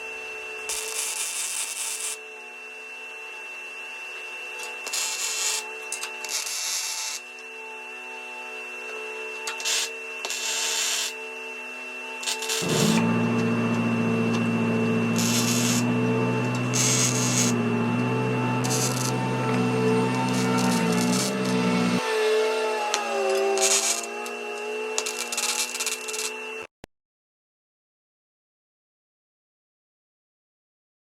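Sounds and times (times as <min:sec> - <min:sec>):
welding arc crackling: 0:00.7 - 0:02.2, 0:04.9 - 0:05.6, 0:12.2 - 0:22.0, 0:23.2 - 0:26.3
steady low hum: 0:12.6 - 0:22.0.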